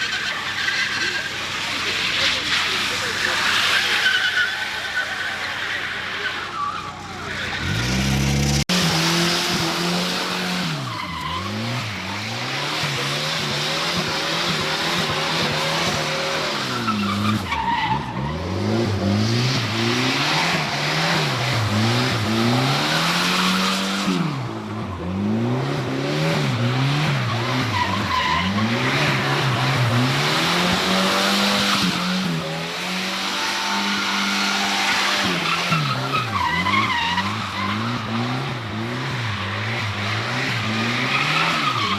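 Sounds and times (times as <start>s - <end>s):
tyres squealing: 10.3s - 41.9s.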